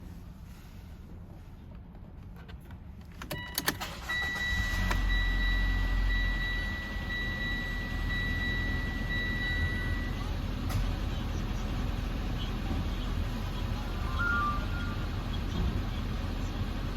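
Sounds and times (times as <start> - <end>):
car engine idling: 3.8 - 16.9
high electronic tone: 13.8 - 15.2.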